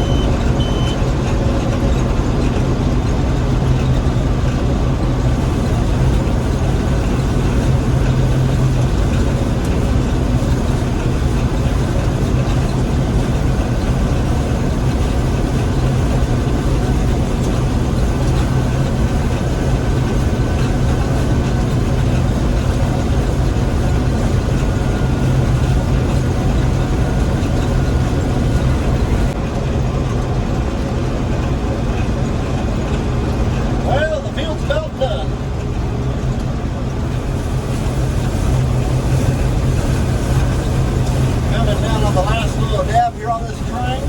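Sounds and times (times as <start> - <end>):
combine harvester running: 0.0 - 44.0.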